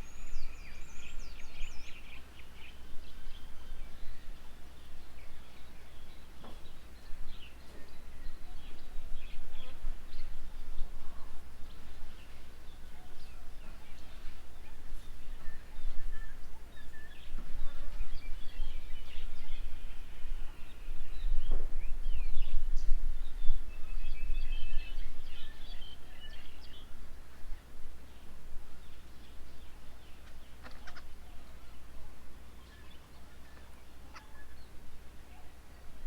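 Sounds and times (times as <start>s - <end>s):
birds chirping and calling: 28.9s - 31.9s.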